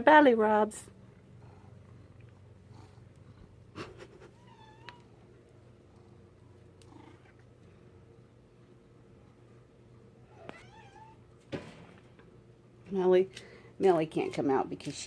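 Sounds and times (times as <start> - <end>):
cat purring: 0.5 - 9.5
cat meowing: 10.3 - 11.2.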